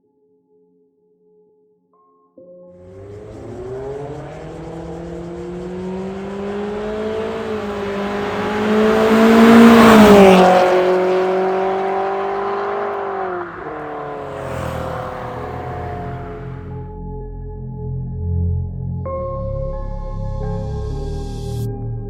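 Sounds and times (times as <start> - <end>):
car engine under throttle: 2.8 - 16.8.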